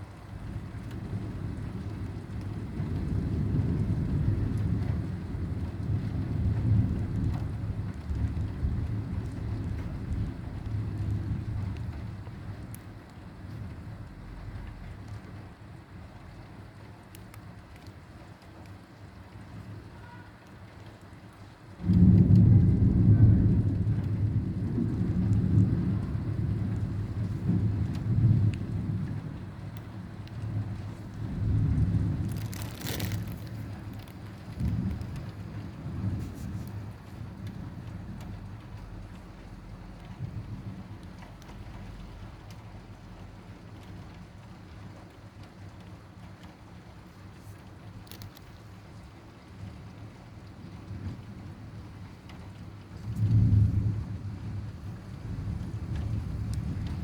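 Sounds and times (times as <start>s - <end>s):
heavy rain falling: 0.0s - 16.9s, 17.6s - 57.0s
thunder rumble: 21.8s - 42.9s, 50.7s - 57.0s.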